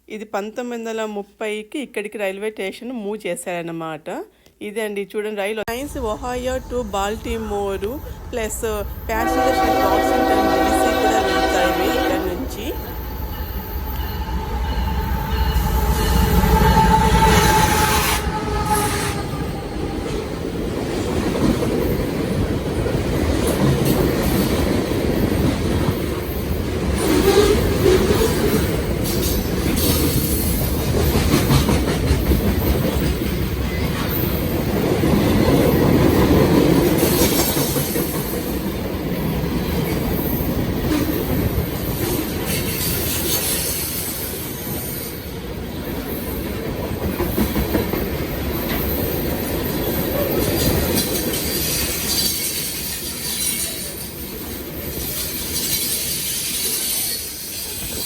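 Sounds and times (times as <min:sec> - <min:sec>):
freight train rumbling: 0:05.7 - 0:58.0.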